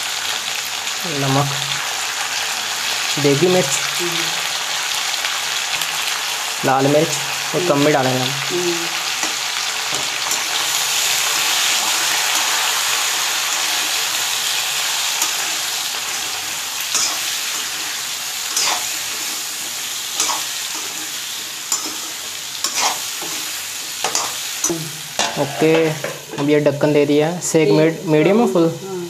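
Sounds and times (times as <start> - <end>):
vegetables sizzling in hot oil: 0.0 - 29.0
metal spatula scraping pan: 15.0 - 26.5.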